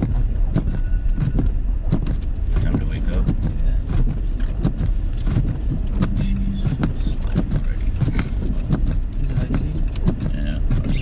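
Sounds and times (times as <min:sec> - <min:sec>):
car road rumble: 0:00.0 - 0:11.0.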